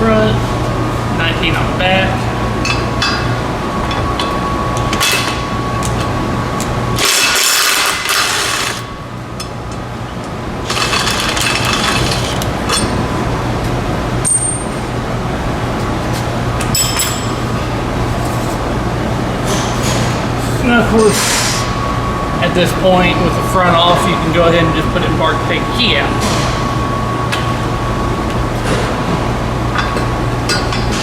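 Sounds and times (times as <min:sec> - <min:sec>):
impact wrench: 0:07.0 - 0:08.9, 0:10.7 - 0:12.9.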